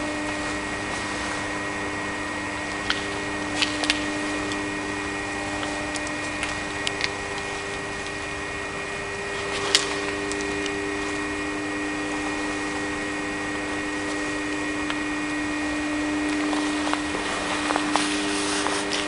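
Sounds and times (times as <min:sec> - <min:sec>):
metalworking lathe humming: 0:00.0 - 0:19.0.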